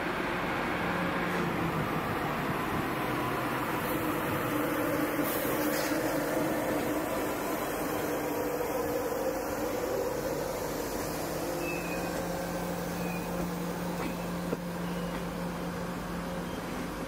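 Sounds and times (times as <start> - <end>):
train humming: 0.0 - 17.0
faint high squeals: 11.5 - 12.2, 12.9 - 13.4.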